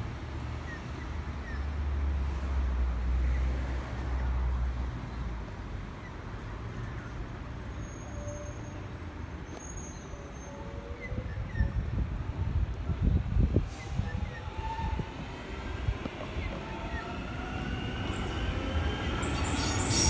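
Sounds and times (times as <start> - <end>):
electric train rumble: 11.2 - 20.0.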